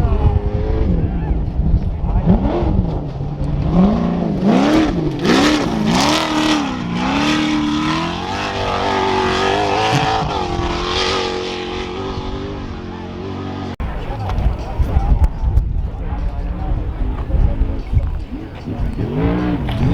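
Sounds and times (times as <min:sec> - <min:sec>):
truck engine revving: 0:02.0 - 0:15.1, 0:17.8 - 0:19.9.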